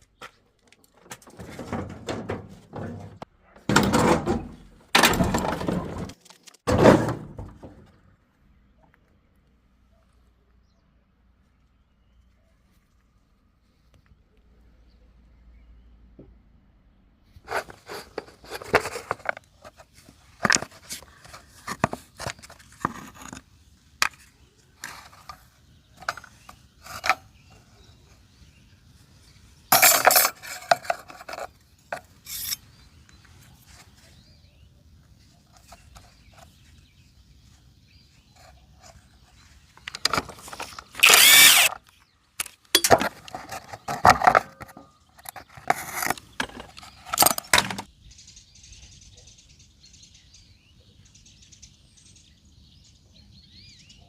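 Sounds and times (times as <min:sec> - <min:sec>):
workshop knocks clicks and scraping: 0:00.0 - 0:08.2, 0:17.5 - 0:23.4, 0:24.0 - 0:27.7, 0:29.7 - 0:33.0, 0:38.4 - 0:41.8, 0:42.4 - 0:47.9
loud rasping bursts: 0:40.8 - 0:41.8.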